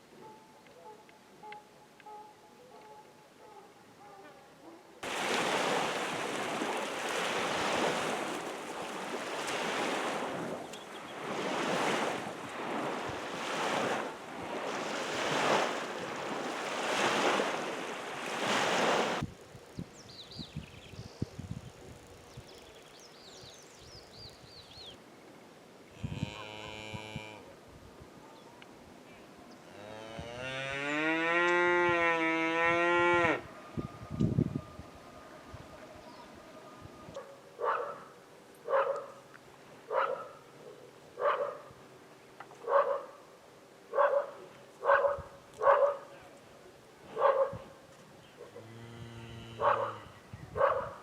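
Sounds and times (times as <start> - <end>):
dog barking: 0.2 - 4.9, 37.2 - 39.2, 39.9 - 41.7, 42.6 - 43.2, 43.9 - 46.1, 47.1 - 47.7, 49.6 - 50.0, 50.6 - 51.0
birds chirping: 10.6 - 11.2, 19.8 - 25.4, 35.1 - 38.1
cow mooing: 26.0 - 27.5, 29.7 - 33.5, 48.5 - 50.2.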